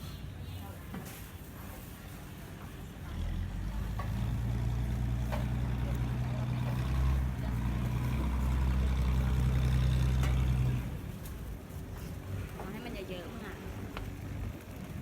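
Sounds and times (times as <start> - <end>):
ferry engine droning: 3.1 - 11.2.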